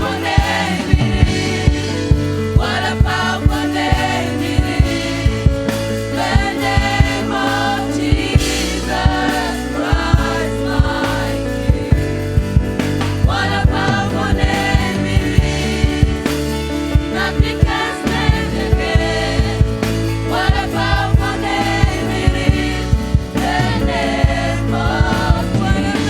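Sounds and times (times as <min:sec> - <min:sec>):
group vocals: 0:00.0 - 0:26.0
steady drum beat: 0:00.0 - 0:26.0.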